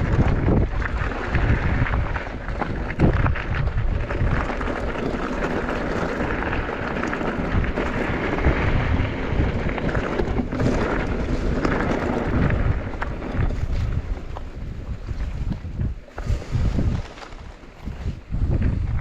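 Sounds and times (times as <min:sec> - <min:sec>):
bike knocks and rattles: 0:00.0 - 0:19.0
bike tyres on dirt trail: 0:00.0 - 0:19.0
wind rushing over microphone: 0:00.0 - 0:19.0.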